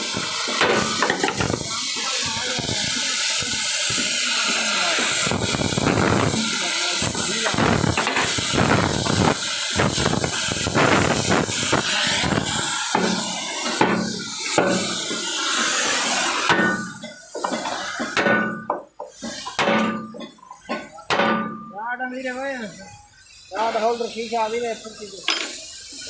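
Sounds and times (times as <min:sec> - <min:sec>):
hammer riveting metal: 0:12.8 - 0:15.0, 0:16.4 - 0:21.7.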